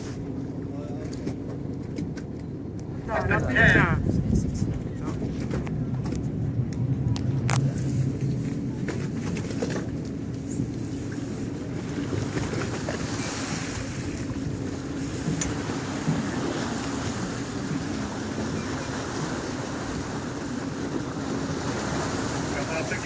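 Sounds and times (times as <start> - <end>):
boat engine hum: 0.0 - 23.0
water noise at sea: 0.0 - 23.0
wind buffeting microphone: 3.1 - 10.8.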